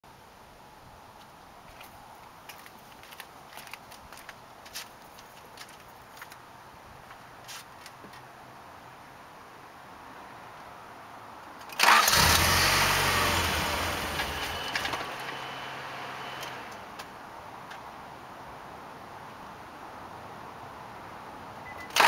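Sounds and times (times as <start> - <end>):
car engine starting and running: 11.7 - 17.0.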